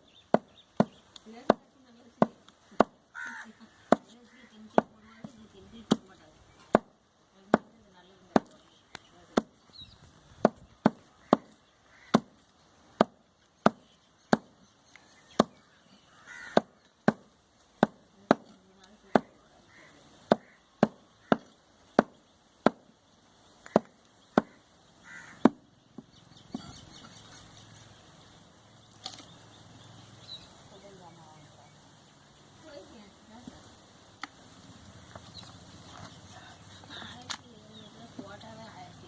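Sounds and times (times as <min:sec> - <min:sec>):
cleaver chopping meat: 0:20.3 - 0:22.8.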